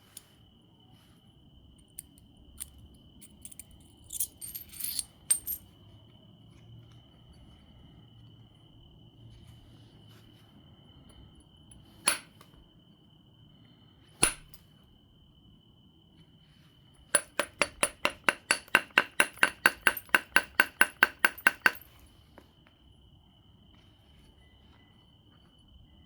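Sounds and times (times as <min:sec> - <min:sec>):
sharp strikes on stone: 0:14.2 - 0:14.6.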